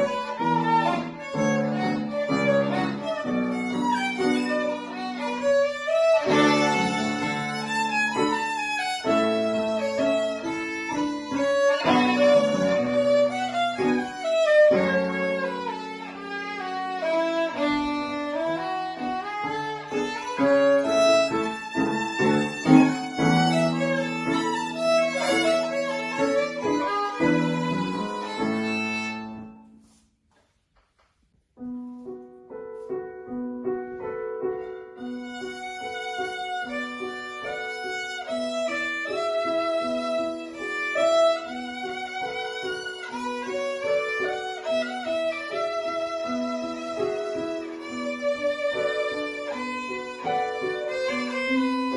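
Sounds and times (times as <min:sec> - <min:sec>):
violin playing: 0:00.0 - 0:29.9, 0:34.0 - 0:51.9
piano accompaniment: 0:00.0 - 0:30.3, 0:31.3 - 0:51.9.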